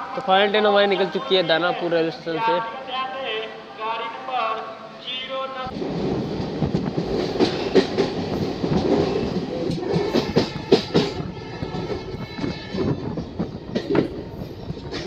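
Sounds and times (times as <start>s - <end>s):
train wheels rumbling on rail: 5.7s - 15.0s
clacks over rail joints: 6.4s - 15.0s.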